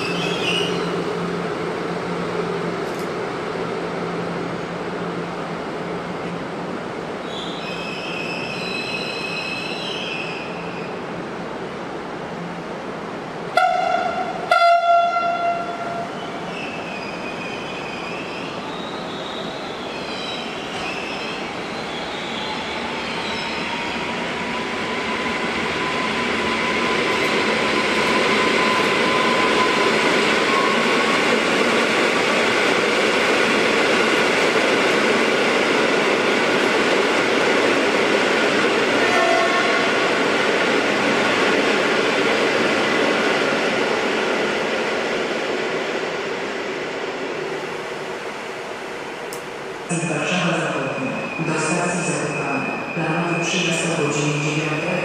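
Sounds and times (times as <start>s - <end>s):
train horn blasts: 13.6s - 16.0s, 39.0s - 39.9s.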